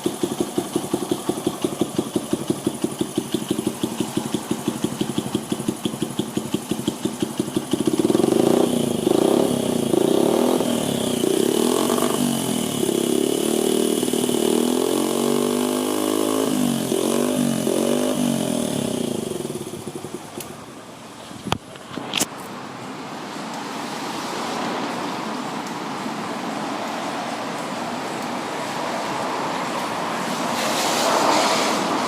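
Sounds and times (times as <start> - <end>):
motorcycle engine revving: 0.0 - 20.6.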